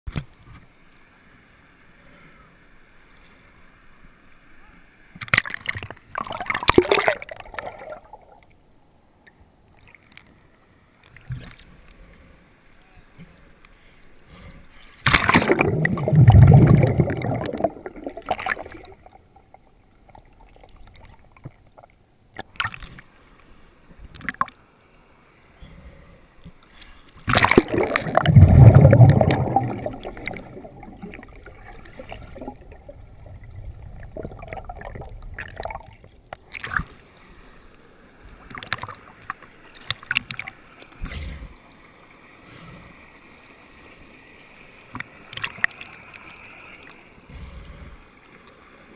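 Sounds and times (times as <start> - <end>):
muffled underwater water rushing: 5.4 - 8.5, 14.3 - 22.6, 27.2 - 48.9.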